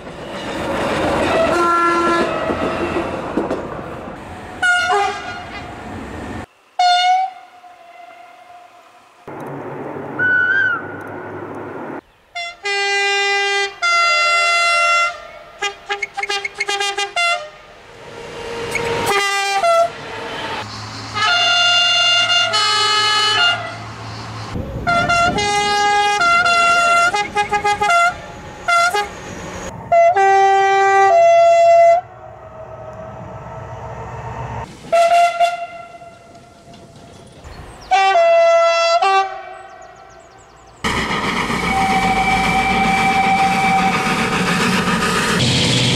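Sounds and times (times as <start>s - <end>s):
train engine rumble: 0.0s - 6.8s, 15.2s - 45.9s
two-tone train horn blasts: 1.4s - 2.6s, 4.6s - 5.6s, 6.8s - 8.9s, 12.4s - 17.7s, 18.5s - 20.0s, 21.2s - 23.8s, 24.8s - 29.2s, 29.8s - 32.7s, 34.9s - 36.3s, 37.9s - 40.0s, 41.7s - 44.0s.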